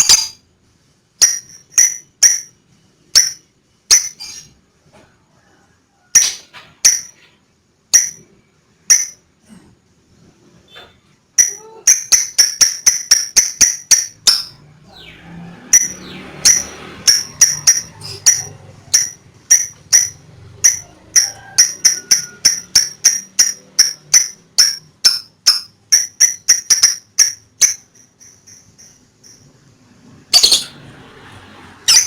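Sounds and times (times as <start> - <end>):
lovebird shrill chirps: 30.3 - 30.8.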